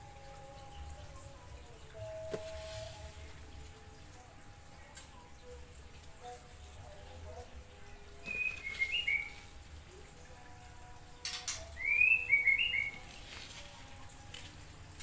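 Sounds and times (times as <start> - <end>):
bird chirping: 8.2 - 9.5, 11.2 - 13.7.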